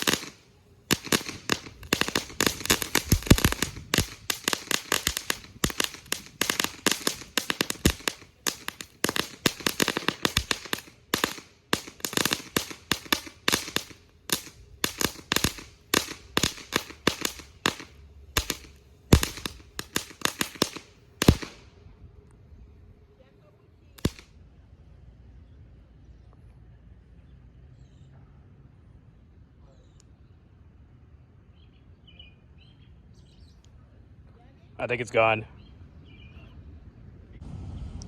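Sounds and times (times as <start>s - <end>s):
firework crackling: 0.0s - 21.8s, 24.0s - 24.3s.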